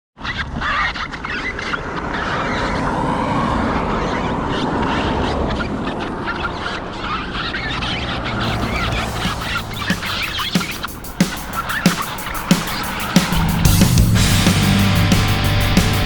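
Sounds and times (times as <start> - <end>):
motor vehicle passing: 7.6 - 10.4, 12.8 - 16.0.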